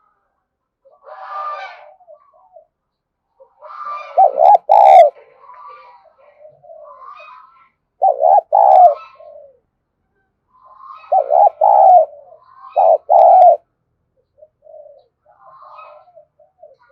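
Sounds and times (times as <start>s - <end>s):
faint bird calls: 0.8s - 9.7s, 10.5s - 13.6s, 14.2s - 16.9s
dove cooing: 3.4s - 5.2s, 6.2s - 7.4s, 8.0s - 9.6s, 10.6s - 13.6s, 14.2s - 16.9s.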